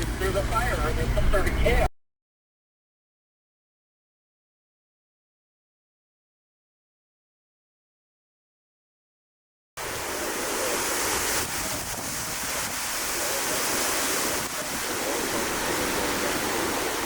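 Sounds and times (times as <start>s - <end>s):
strong wind buffeting microphone: 9.8s - 17.0s.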